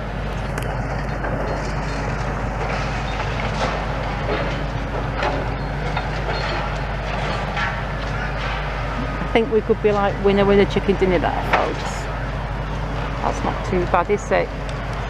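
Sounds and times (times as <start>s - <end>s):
excavator diesel engine running: 0.0s - 15.0s
concrete cracking and clattering: 0.3s - 9.3s.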